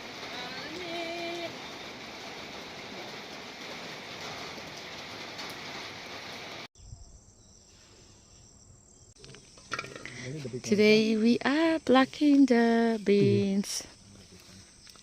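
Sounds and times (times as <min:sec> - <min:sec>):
steady rainfall: 0:00.0 - 0:06.7
crickets chirping: 0:06.8 - 0:15.0.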